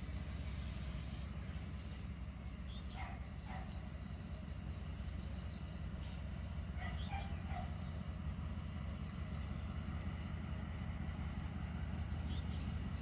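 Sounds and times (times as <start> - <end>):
bird chirping: 2.6 - 6.1.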